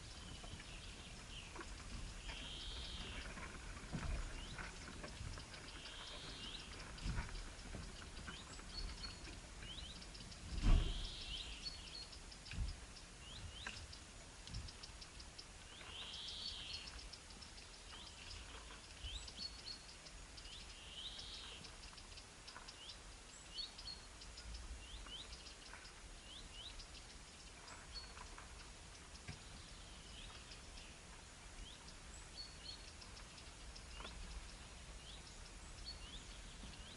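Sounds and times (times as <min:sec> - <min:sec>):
small birds chirping: 0:00.0 - 0:36.9.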